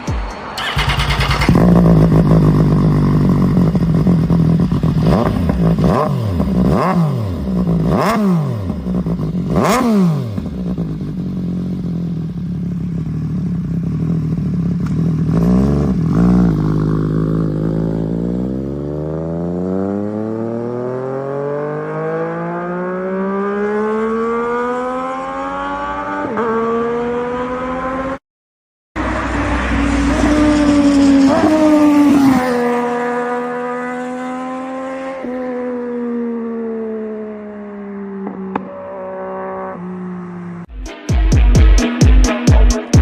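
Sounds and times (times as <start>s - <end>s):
motorcycle engine revving: 0.6s - 28.2s, 29.0s - 40.7s.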